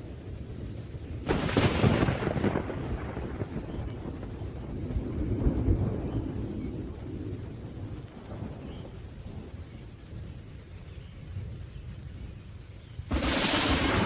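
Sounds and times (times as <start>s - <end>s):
steady rain: 0.0s - 14.0s
thunder rolling: 1.2s - 8.8s, 13.1s - 14.0s.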